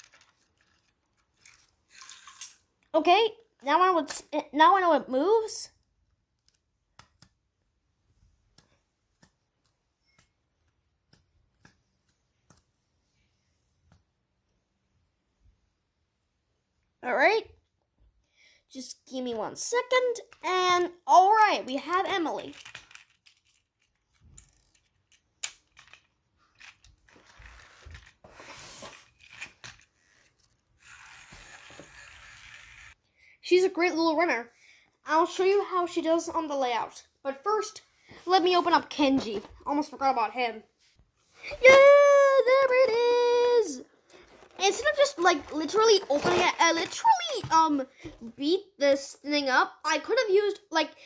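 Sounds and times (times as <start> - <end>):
faint clicks and taps: 5.8 - 7.4, 8.5 - 12.8
packaging rustling: 44.1 - 47.4.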